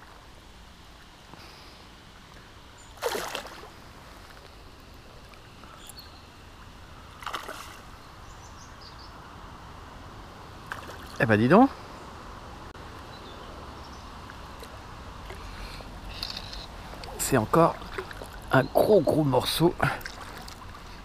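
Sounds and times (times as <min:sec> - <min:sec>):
river water: 0:00.0 - 0:21.0
fish splashing at water surface: 0:03.0 - 0:03.8.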